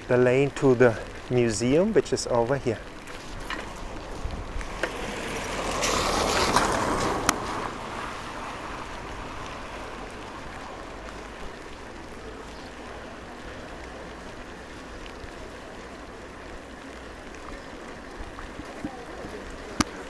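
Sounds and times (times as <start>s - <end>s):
rain hissing: 0.0s - 20.0s
tyres hissing on wet road: 0.0s - 20.0s.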